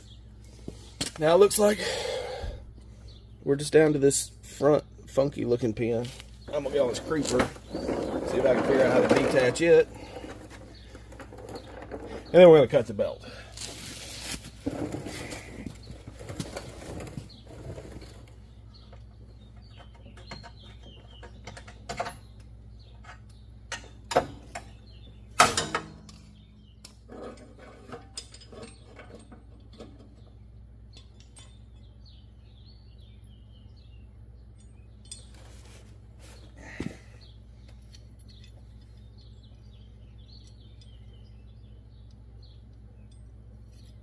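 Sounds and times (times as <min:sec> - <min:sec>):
birds chirping faintly: 0:00.0 - 0:44.0
metal tools clinking and knocking: 0:26.8 - 0:30.3, 0:30.9 - 0:31.9, 0:34.5 - 0:35.7, 0:37.7 - 0:39.2.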